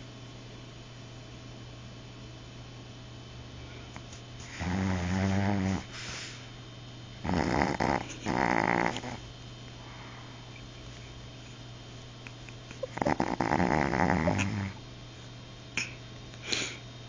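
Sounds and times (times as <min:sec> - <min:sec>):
dog snoring: 0:04.4 - 0:06.0, 0:07.2 - 0:09.3, 0:12.8 - 0:14.8.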